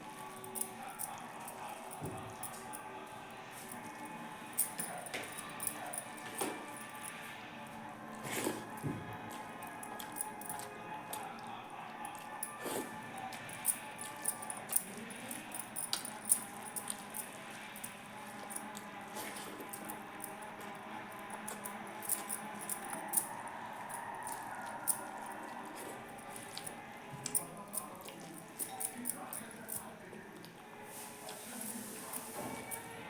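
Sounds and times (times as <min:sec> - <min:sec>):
wet chewing: 0:08.1 - 0:32.3.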